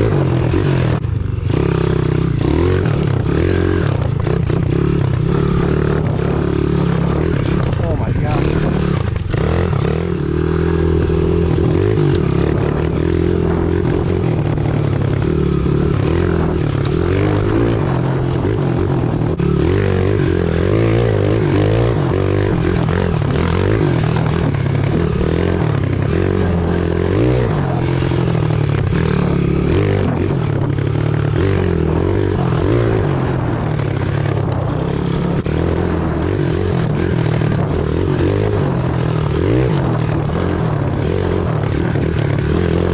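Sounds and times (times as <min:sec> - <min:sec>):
small motorbike engine revving: 0:00.0 - 0:42.9.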